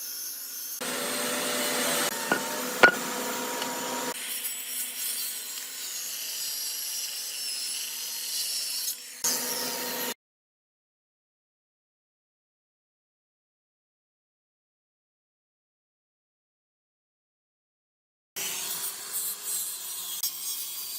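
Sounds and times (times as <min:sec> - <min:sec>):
tool rasping wood: 0:02.2 - 0:03.1
sharp knocks: 0:02.3 - 0:03.1.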